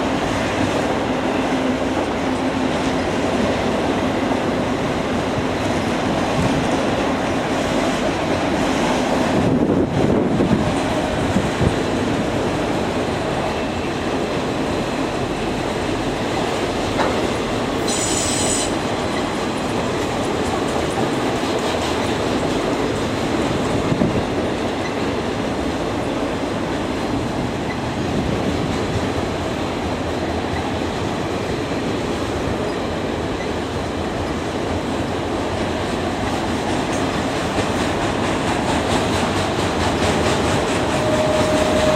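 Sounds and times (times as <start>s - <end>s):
train cars rumbling on rails: 0.0s - 41.9s
wheels clacking over rail joints: 14.4s - 18.1s, 18.7s - 41.9s
high wheel squeal: 17.8s - 18.8s, 40.9s - 41.9s.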